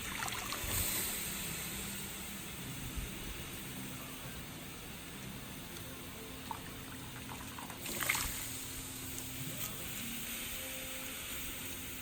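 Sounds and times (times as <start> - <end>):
water splashing and trickling: 0.0 - 1.1, 6.4 - 8.7.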